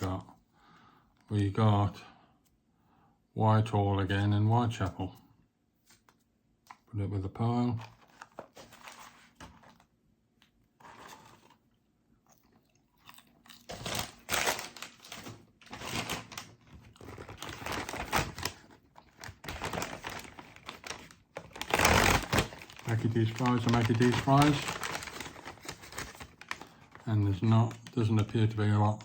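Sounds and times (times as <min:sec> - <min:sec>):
food being eaten: 0:11.1 - 0:14.2
food wrapper crinkling: 0:13.0 - 0:29.0.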